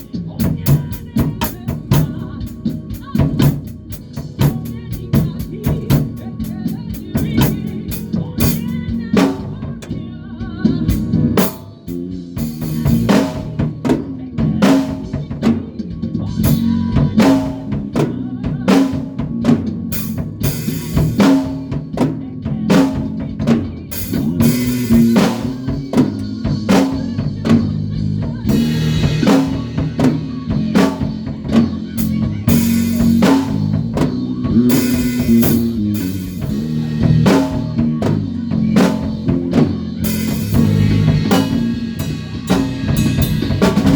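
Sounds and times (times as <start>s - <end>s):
bass guitar line: 0.0s - 43.9s
drum kit playing a busy beat: 0.0s - 43.9s.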